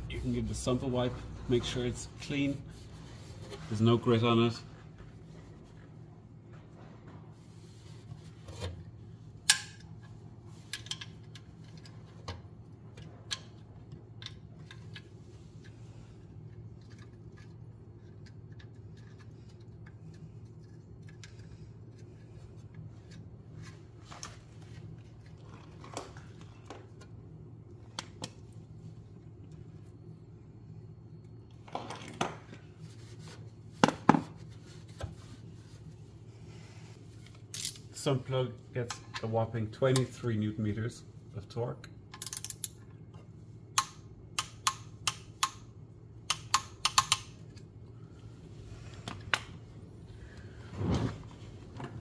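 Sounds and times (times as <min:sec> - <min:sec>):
steady low hum: 0:00.0 - 0:52.0
socket and ratchet clicking: 0:42.1 - 0:42.8, 0:43.8 - 0:45.6, 0:46.3 - 0:47.5.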